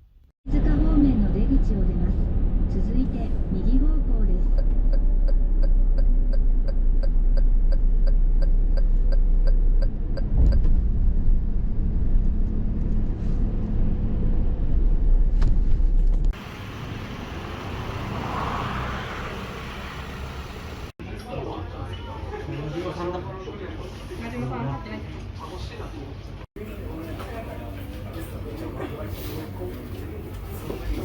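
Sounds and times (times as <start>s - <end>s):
road rumble inside car: 0.5s - 21.0s
turn indicator ticking: 4.5s - 9.9s.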